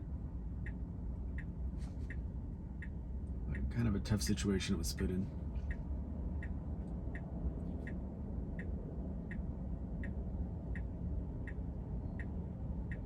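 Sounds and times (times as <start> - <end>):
turn signal ticking: 0.0 - 13.0.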